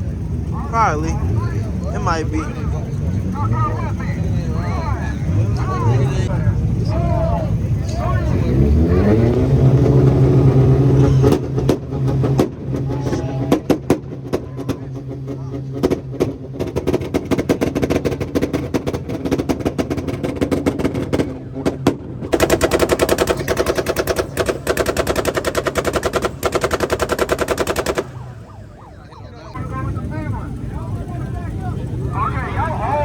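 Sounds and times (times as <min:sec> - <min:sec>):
car engine on launch limiter: 0:00.0 - 0:33.0
exhaust banging and popping: 0:07.6 - 0:28.7.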